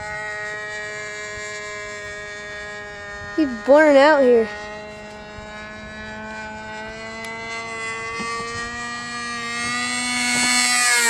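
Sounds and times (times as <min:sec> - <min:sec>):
model airplane engine whine: 0:00.0 - 0:11.0.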